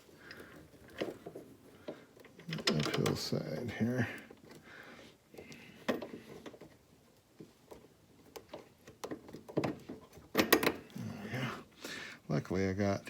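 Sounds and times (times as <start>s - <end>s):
hand tools clicking and knocking: 0.1s - 4.7s, 5.3s - 6.8s, 7.4s - 11.0s.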